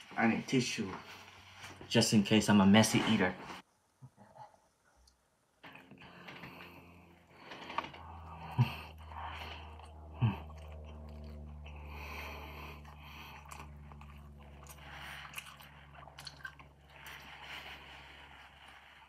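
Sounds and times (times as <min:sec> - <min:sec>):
close-up chewing and biting: 0:08.0 - 0:17.9
wet mouth clicks: 0:12.8 - 0:16.7.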